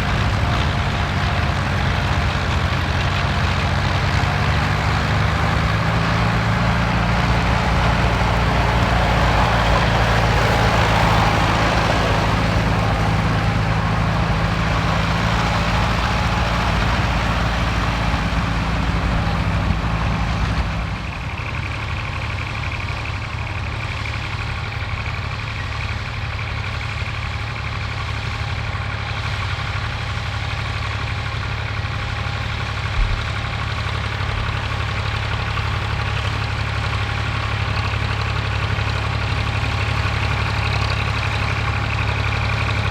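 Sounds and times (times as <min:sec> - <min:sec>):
different engine note: 0:00.0 - 0:21.2
tractor engine running: 0:00.0 - 0:42.9.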